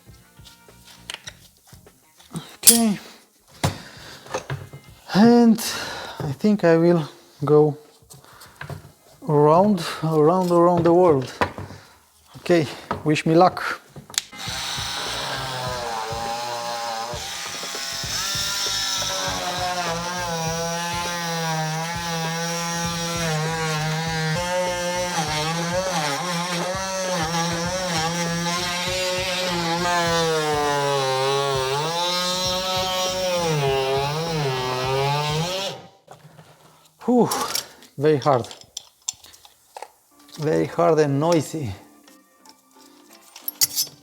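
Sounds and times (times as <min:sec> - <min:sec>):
multi-tool cutting plastic: 0:02.4 - 0:03.0, 0:14.1 - 0:36.0.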